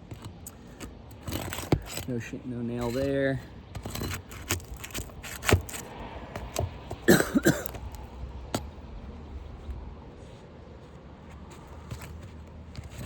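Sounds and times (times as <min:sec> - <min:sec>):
clicks and scrapes on roof shingles: 0:00.0 - 0:08.7, 0:11.3 - 0:13.0
person coughing: 0:07.1 - 0:07.8.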